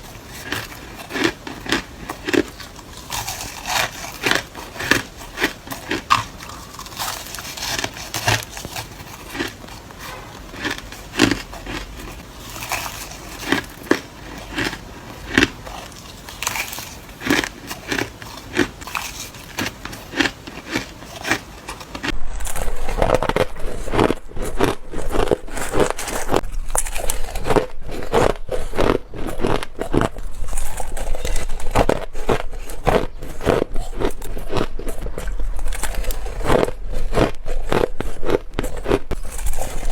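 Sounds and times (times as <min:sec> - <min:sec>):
ice being crunched: 0:00.4 - 0:09.6, 0:18.9 - 0:39.9.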